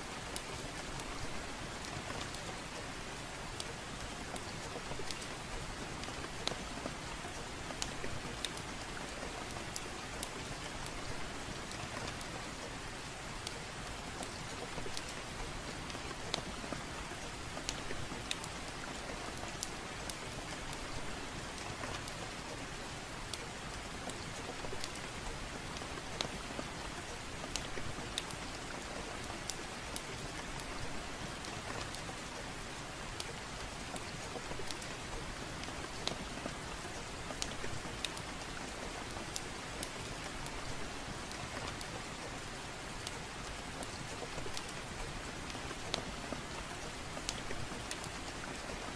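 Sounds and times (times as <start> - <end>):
soft rain hiss: 0.0 - 48.9
wood fire crackling and popping: 35.7 - 48.7.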